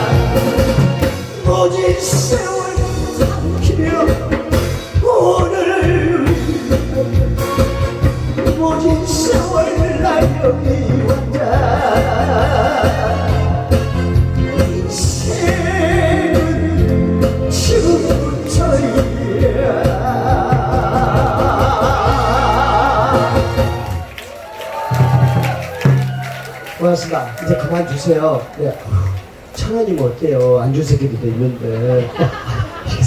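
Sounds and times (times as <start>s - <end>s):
backing track with bass beat: 0.0s - 24.1s
person singing through pa: 0.0s - 24.1s.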